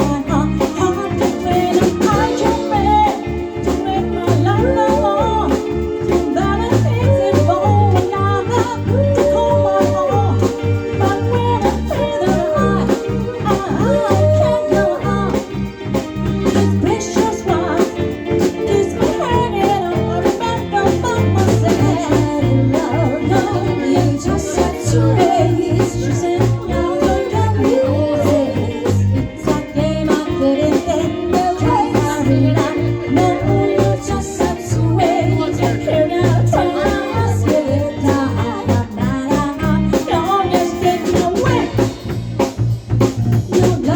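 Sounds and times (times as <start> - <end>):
person singing: 0.0 - 42.2, 43.2 - 43.9
bass line: 0.0 - 43.9
guitar: 0.0 - 43.9
regular beat: 0.0 - 43.9.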